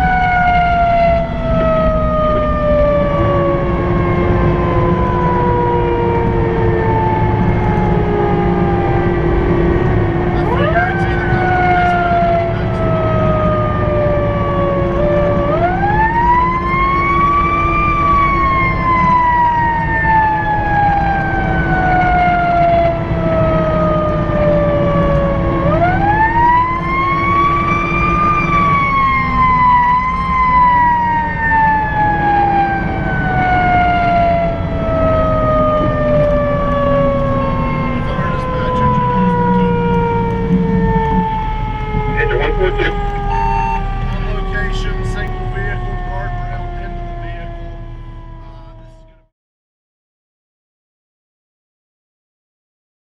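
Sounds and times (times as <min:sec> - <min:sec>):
fire engine siren wailing: 0:00.0 - 0:49.3
truck engine rumble: 0:00.0 - 0:49.3.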